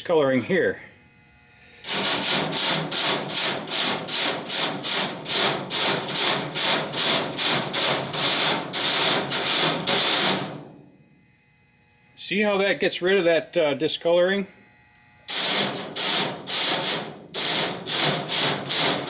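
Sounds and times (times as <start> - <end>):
wire brush scrubbing metal: 1.8 - 10.7, 15.3 - 19.0.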